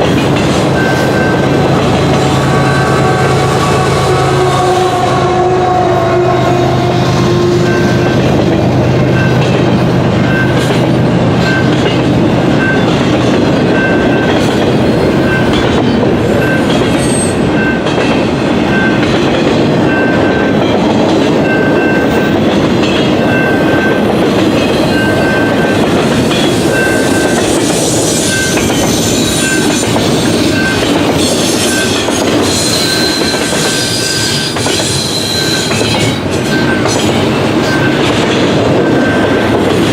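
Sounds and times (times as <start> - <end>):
clickety-clack over rail joints: 0.0 - 5.1, 7.4 - 39.9
freight train wheels rumbling: 0.0 - 39.9
high-pitched wheel squeal: 30.5 - 36.8.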